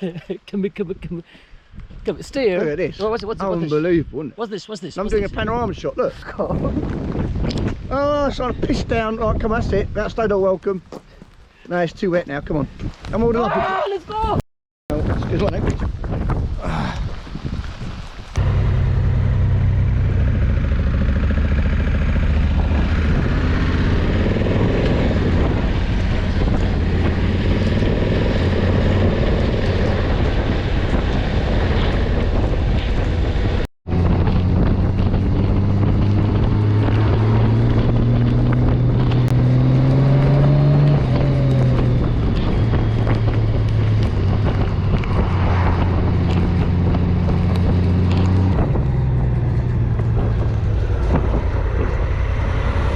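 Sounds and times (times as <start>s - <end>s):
wind noise on microphone: 0.9s - 4.3s, 4.9s - 11.3s, 11.9s - 52.9s
motorcycle engine running: 18.4s - 31.2s, 33.9s - 52.9s.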